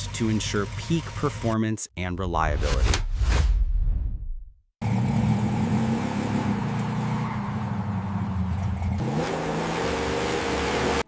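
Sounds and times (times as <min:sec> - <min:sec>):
car engine running: 0:00.0 - 0:01.6, 0:04.8 - 0:11.0.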